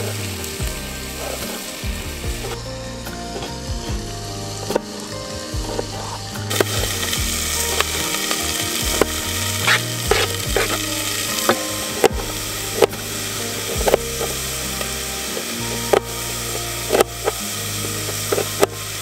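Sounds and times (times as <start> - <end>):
meat sizzling in a pan: 0.0 - 2.7, 4.5 - 19.0.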